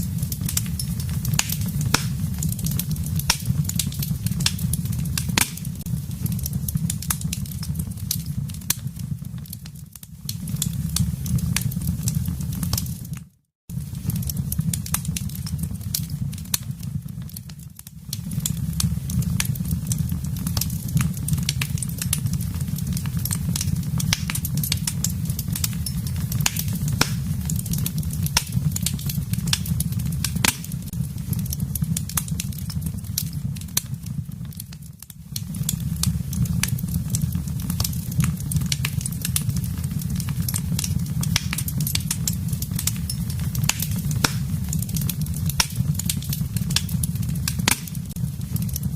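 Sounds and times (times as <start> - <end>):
low rumble of flames: 0.0 - 48.9
wood fire popping and snapping: 0.0 - 48.9.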